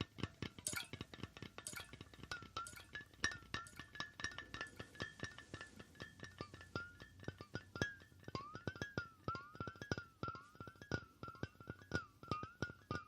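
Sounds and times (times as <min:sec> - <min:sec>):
fingers tapping on hard object: 0:00.0 - 0:13.0.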